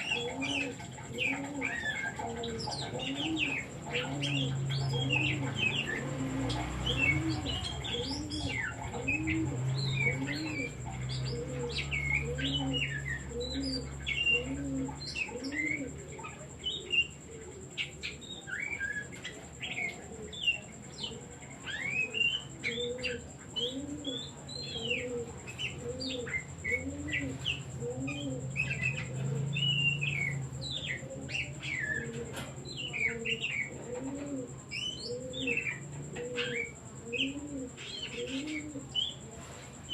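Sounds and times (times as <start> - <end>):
low cooing: 0.0 - 39.9
bird singing whistles and chirps: 27.4 - 32.1.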